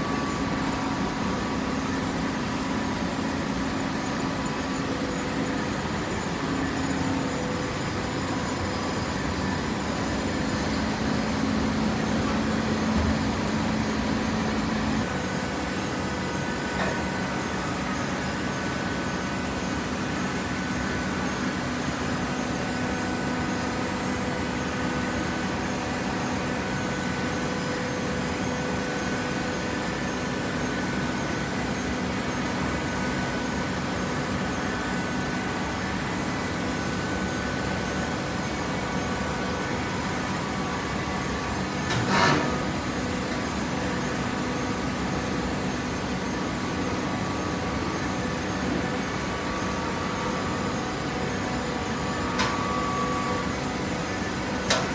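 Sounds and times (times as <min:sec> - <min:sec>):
baler motor hum: 0:04.4 - 0:18.0.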